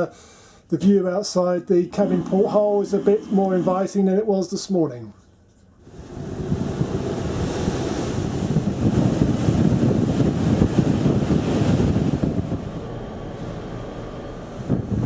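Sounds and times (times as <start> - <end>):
wind buffeting microphone: 5.8 - 15.0.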